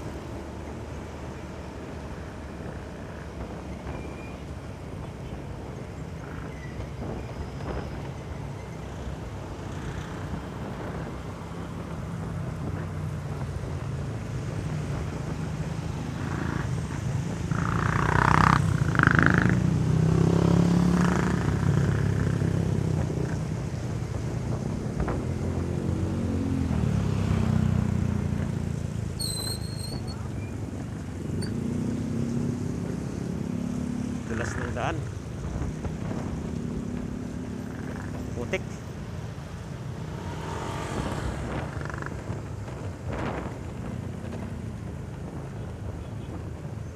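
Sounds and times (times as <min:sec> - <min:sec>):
wind noise on microphone: 0:03.4 - 0:09.3, 0:10.0 - 0:19.2, 0:21.2 - 0:31.6, 0:35.0 - 0:46.9
motorcycle engine: 0:15.9 - 0:23.4, 0:35.6 - 0:44.5.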